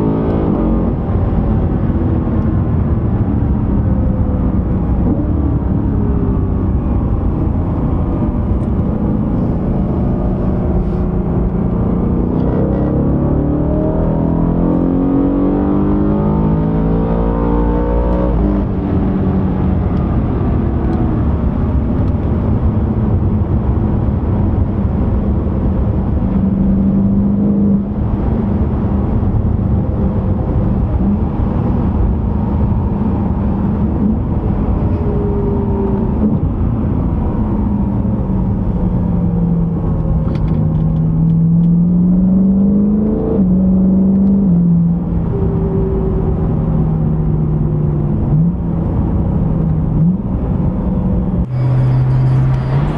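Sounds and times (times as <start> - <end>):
car engine revving: 0.0 - 52.9.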